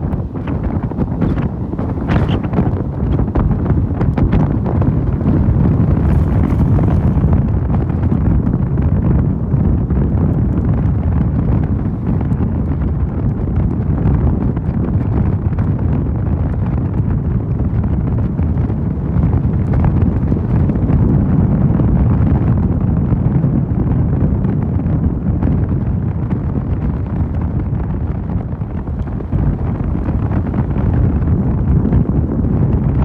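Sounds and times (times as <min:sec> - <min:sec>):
motorcycle riding noise: 0:00.0 - 0:09.6, 0:28.2 - 0:33.0
wind rushing over microphone: 0:00.0 - 0:33.0.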